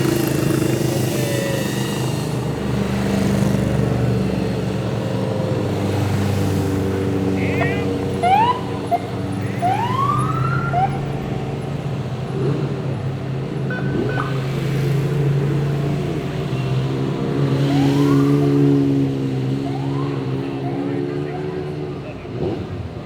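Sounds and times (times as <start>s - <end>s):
race car engines idling: 6.9s - 13.6s
rising siren whoops: 8.2s - 11.6s, 17.6s - 18.8s, 19.6s - 20.6s.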